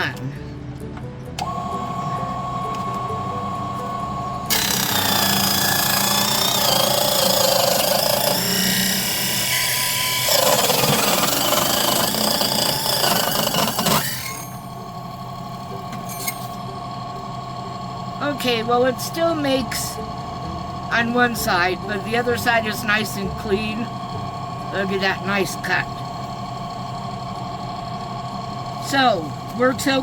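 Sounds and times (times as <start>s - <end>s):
saw cutting wood: 1.4s - 30.0s
table saw whining: 1.4s - 30.0s.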